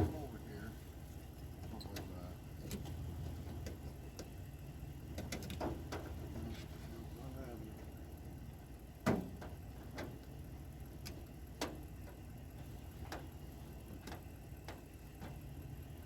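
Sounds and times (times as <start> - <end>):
sharp clicks and light knocks: 1.6 - 4.4, 5.1 - 6.2, 11.0 - 12.2, 13.0 - 13.3, 14.0 - 15.4.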